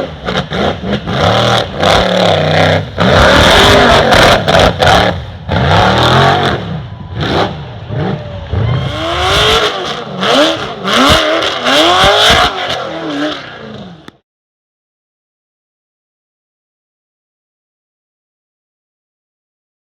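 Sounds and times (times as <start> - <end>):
truck engine revving: 0.0 - 14.2.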